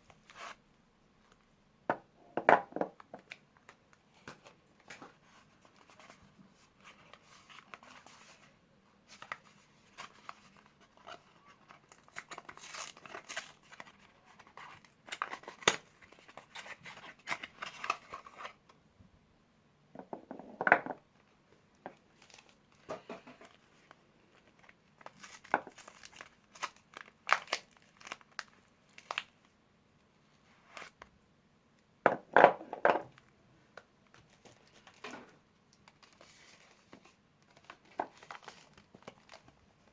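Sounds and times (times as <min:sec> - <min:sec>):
wrappers crinkling: 0:23.5 - 0:29.4.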